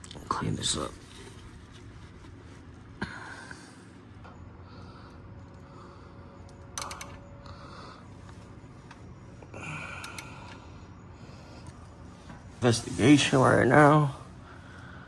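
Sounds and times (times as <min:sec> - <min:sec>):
light clicks: 0:06.4 - 0:07.2.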